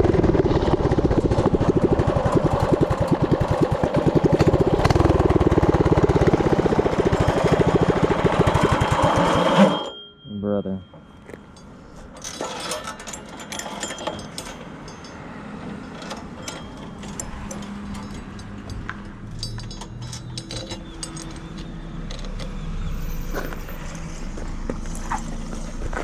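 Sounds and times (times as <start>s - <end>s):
small engine running: 0.0s - 9.9s
loose metal rattling: 11.4s - 22.6s.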